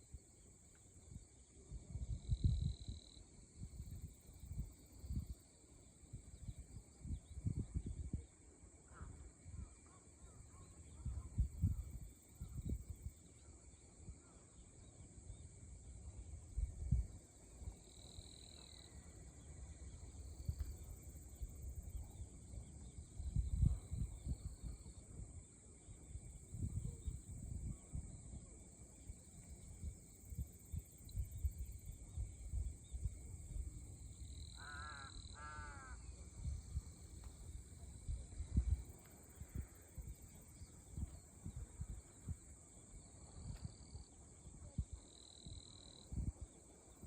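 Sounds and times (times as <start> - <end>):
crow cawing: 34.6 - 36.0.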